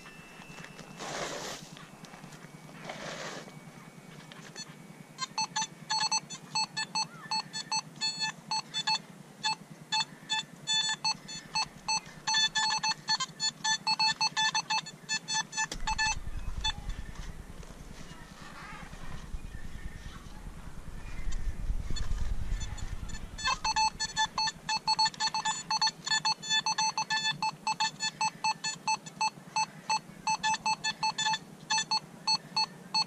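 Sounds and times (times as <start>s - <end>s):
metal detector beeping: 0.0s - 33.0s
low rumble: 15.8s - 24.9s.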